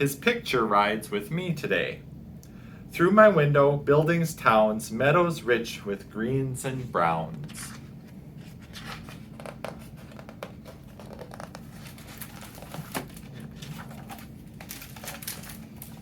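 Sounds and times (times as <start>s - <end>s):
paper pages rustling and turning: 7.4s - 16.0s.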